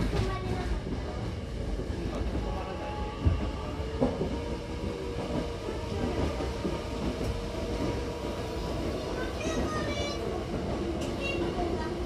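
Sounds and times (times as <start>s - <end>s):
wheels rumbling on track: 0.0s - 12.0s.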